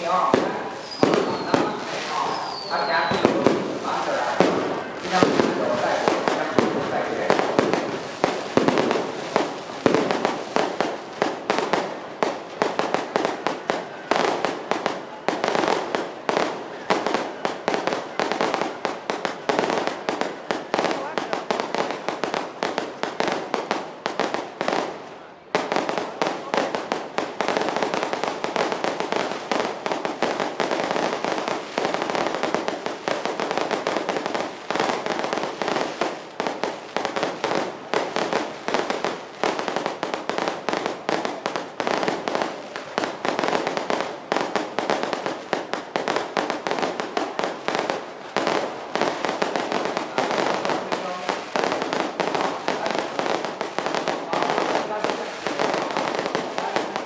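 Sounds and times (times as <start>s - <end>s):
firecrackers banging: 0.0s - 57.0s.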